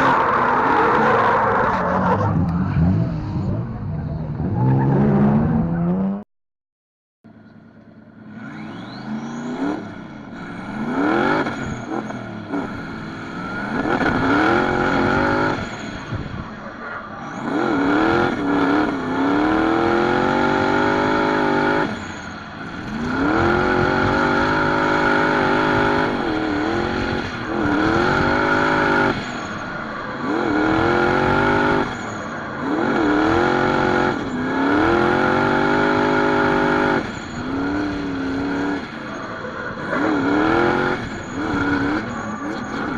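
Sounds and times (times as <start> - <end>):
car engine revving hard: 8.3 - 16.2, 17.2 - 42.9.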